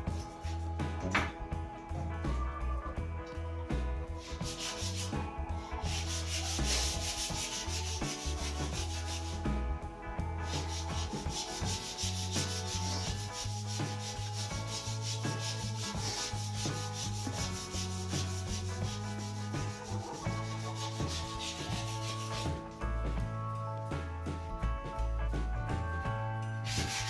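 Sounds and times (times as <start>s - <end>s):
sandpaper rasping on wood: 4.2s - 5.1s, 5.7s - 9.4s, 10.4s - 22.6s, 26.7s - 27.0s.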